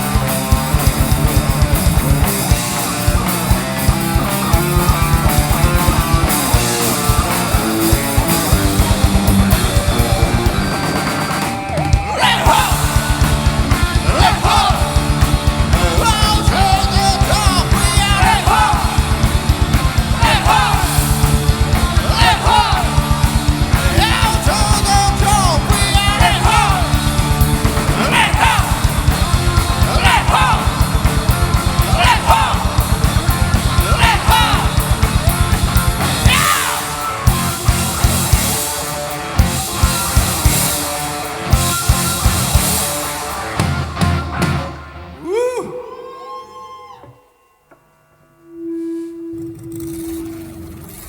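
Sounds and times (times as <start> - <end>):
drum and cymbal hits: 0.0 - 45.0
heavy metal band playing: 0.0 - 46.0
person shouting vocals: 29.9 - 30.7, 33.8 - 34.8, 45.2 - 47.0.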